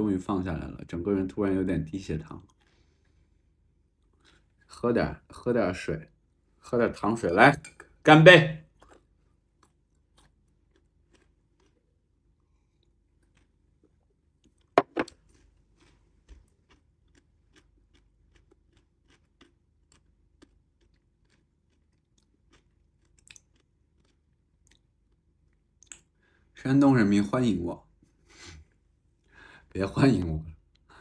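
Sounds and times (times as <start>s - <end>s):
person chewing softly: 1.9s - 5.4s, 8.6s - 26.6s, 27.9s - 31.0s.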